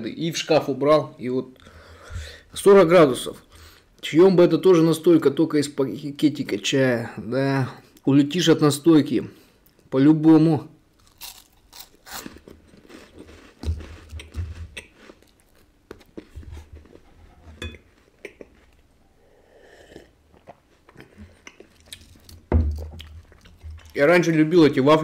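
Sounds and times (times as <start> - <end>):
wafer biscuit crunching: 11.0 - 17.2, 20.0 - 24.0.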